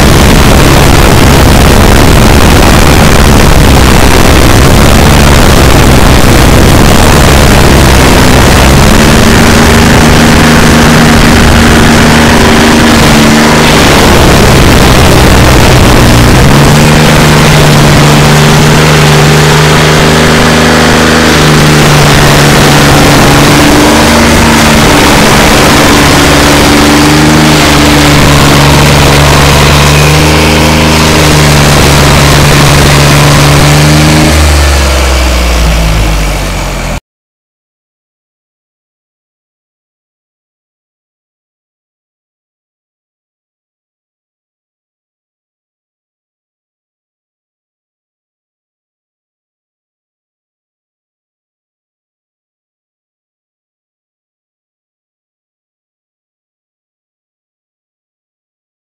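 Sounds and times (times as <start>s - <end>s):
constant rushing noise: 0.0s - 37.0s
stump grinder engine running: 0.0s - 37.0s.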